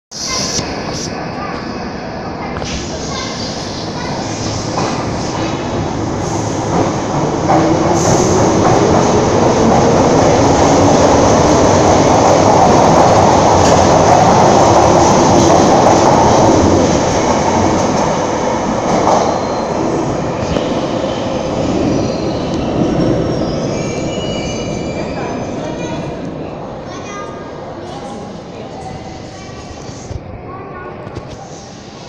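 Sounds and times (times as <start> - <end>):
train clattering over rails: 2.6 - 19.6.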